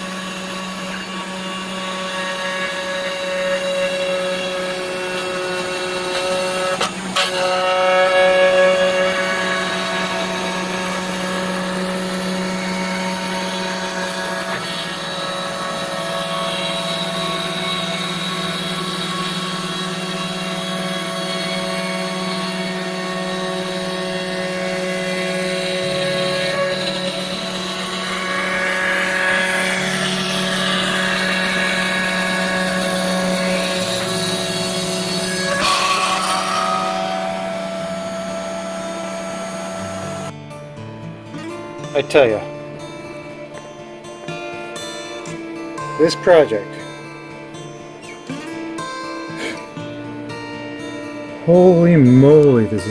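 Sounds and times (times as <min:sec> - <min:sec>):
router spindle motor whine: 0:00.0 - 0:52.9
low hum: 0:08.4 - 0:40.3.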